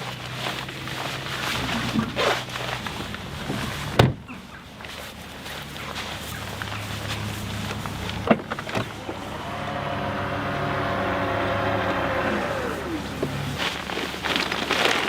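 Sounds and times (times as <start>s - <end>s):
motor humming: 6.6s - 14.0s.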